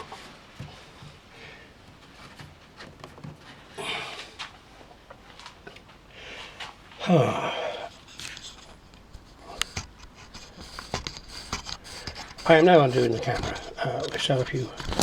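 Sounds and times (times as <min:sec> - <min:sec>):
man exhaling with grunt: 0:03.8 - 0:04.3, 0:07.0 - 0:07.9.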